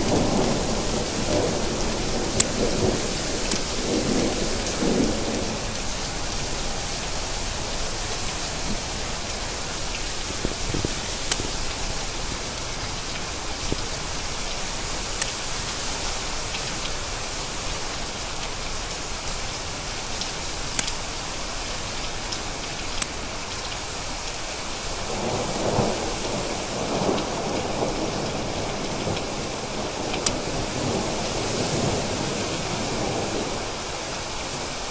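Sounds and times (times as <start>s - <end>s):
rain drop clicks: 0.0s - 6.8s, 7.4s - 25.9s, 26.8s - 31.4s
low rumble of thunder: 0.0s - 15.1s, 24.8s - 34.6s
steady rain falling: 0.0s - 34.9s.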